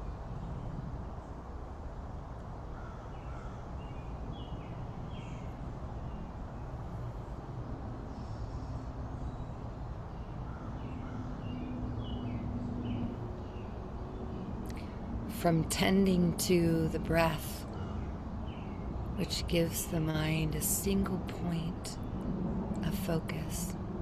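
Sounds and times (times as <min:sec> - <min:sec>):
low outdoor rumble: 0:00.0 - 0:24.0
birds chirping: 0:08.0 - 0:23.8.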